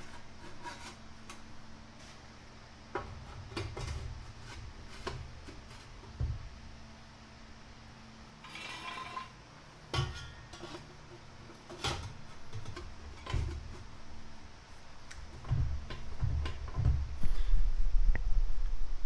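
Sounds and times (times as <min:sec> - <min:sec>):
scraping rattle: 0:08.4 - 0:09.4
metallic clanks of exhaust pipe: 0:10.0 - 0:10.8.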